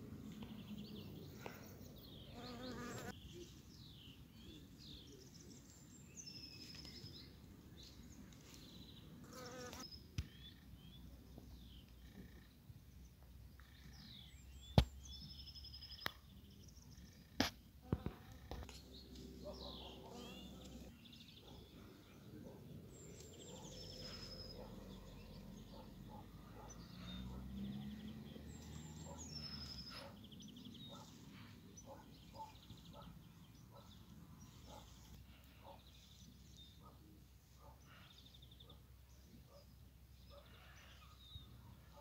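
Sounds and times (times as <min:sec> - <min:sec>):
small birds singing: 0:00.0 - 0:42.0.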